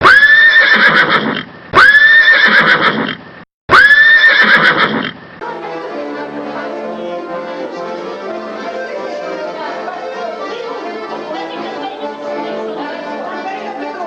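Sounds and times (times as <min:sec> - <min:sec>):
horse whinny: 0:00.0 - 0:05.2
music: 0:05.4 - 0:14.0.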